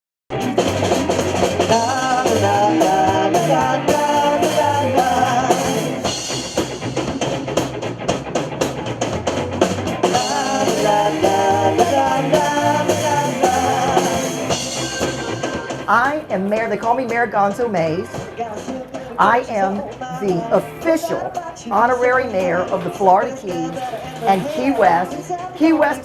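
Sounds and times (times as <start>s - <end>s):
rock band playing: 0.3s - 26.0s
person singing: 1.6s - 6.1s, 10.0s - 14.9s, 15.8s - 26.0s.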